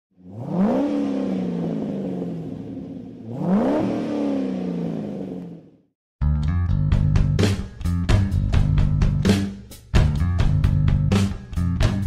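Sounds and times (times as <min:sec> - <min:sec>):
car engine revving: 0:00.2 - 0:05.9.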